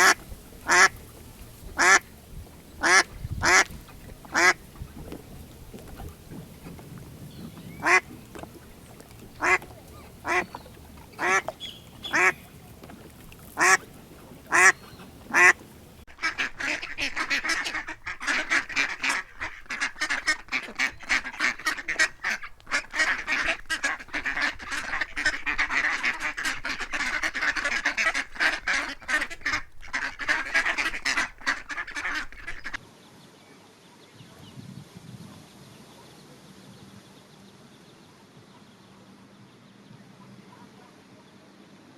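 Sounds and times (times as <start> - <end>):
ducks quacking: 0.0 - 32.8.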